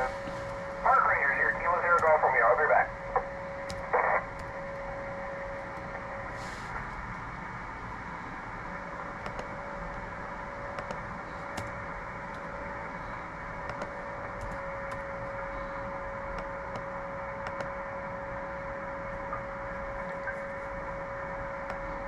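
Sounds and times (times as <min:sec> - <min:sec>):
radio band hiss: 0:00.0 - 0:07.1
sharp radio clicks: 0:01.0 - 0:02.5.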